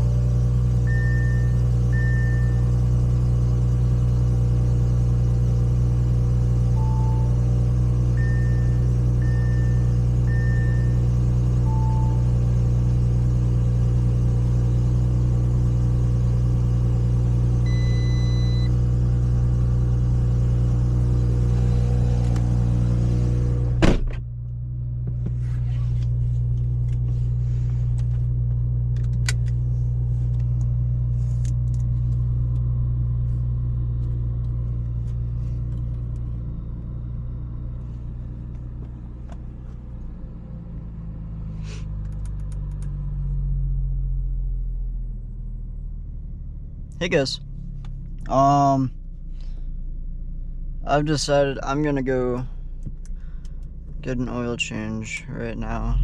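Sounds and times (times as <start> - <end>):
car engine and road drone: 0.0 - 56.0
short beep: 0.9 - 2.7, 6.8 - 7.5, 8.1 - 12.4, 17.7 - 18.8.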